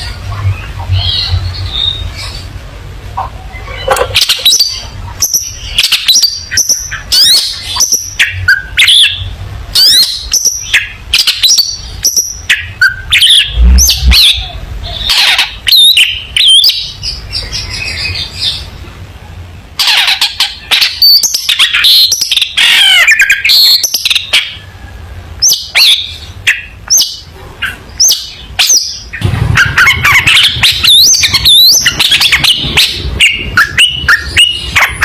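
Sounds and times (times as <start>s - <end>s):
steady low hum: 0.0s - 35.0s
shrike singing chirps and whistles: 3.5s - 18.7s, 25.4s - 35.0s.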